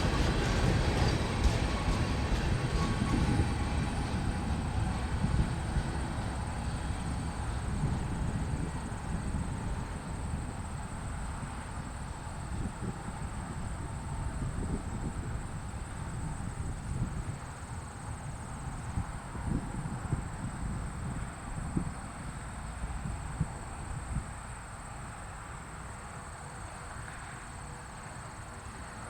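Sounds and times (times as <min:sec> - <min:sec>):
steel wheels clattering on rails: 0:00.0 - 0:09.0
freight train rumble: 0:00.0 - 0:29.0.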